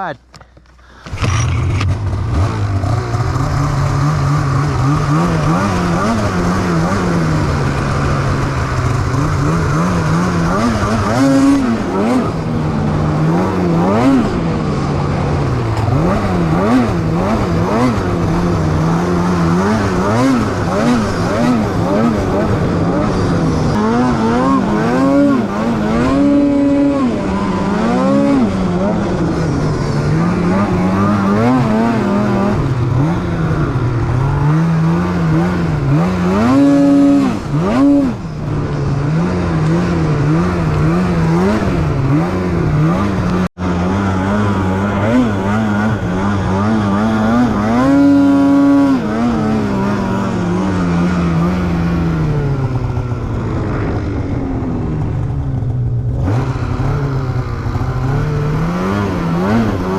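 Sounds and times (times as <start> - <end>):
snowmobile engine revving: 1.0 - 59.9.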